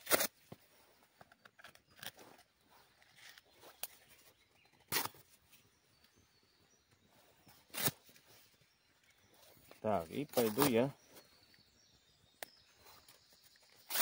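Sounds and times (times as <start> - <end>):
dry branches cracking: 10.1 - 10.9.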